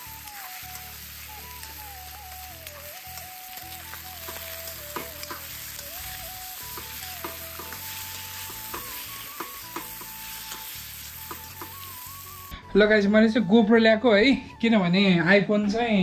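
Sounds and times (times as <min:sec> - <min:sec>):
chicken sizzling in hot oil: 0:00.0 - 0:12.5.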